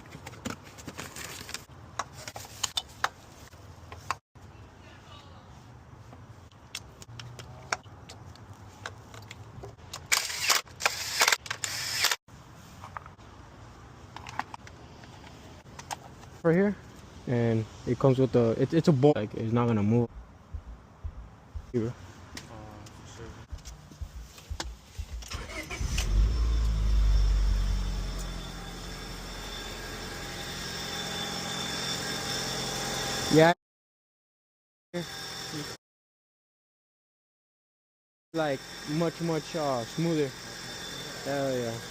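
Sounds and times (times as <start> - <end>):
loud rasping bursts: 10.1 - 12.2
steady low hum: 20.1 - 21.8, 23.1 - 25.3
car engine starting and idling: 25.0 - 28.5.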